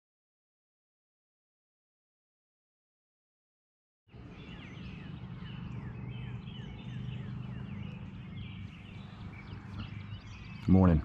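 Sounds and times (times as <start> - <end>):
birds chirping: 4.1 - 11.0
steady low hum: 4.1 - 11.0.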